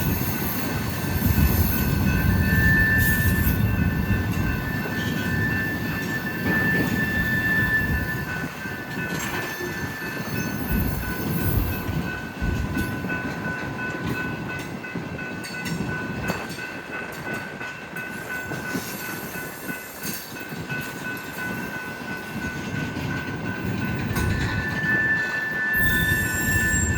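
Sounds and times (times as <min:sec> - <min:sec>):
freight train wheels rumbling: 0:00.0 - 0:26.9
high-pitched wheel squeal: 0:02.4 - 0:03.7, 0:04.8 - 0:08.5, 0:24.2 - 0:26.9.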